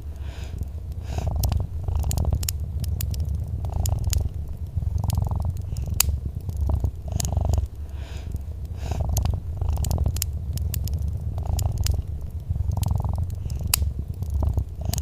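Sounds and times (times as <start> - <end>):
cat purring: 0.0 - 15.0
wood fire crackling and popping: 0.0 - 15.0.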